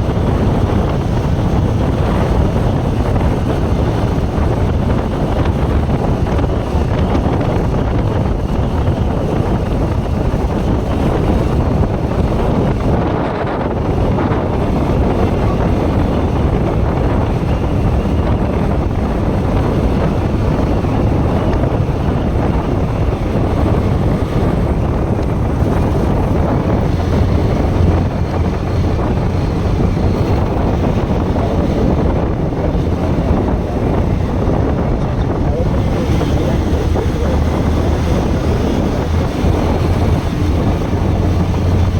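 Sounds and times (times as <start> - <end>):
motorcycle engine: 0.0 - 41.9
road noise: 0.0 - 41.9
wind rushing over microphone: 0.0 - 41.9.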